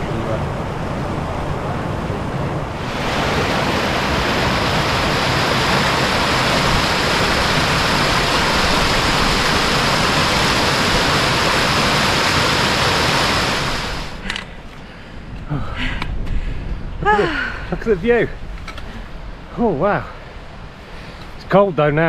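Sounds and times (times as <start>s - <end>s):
stream water rushing: 0.0s - 14.3s.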